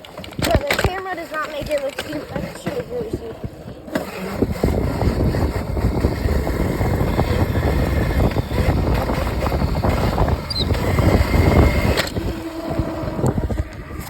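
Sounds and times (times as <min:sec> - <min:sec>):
electric dirt bike riding over rough ground: 0:00.0 - 0:14.0
wind buffeting microphone: 0:00.4 - 0:14.0.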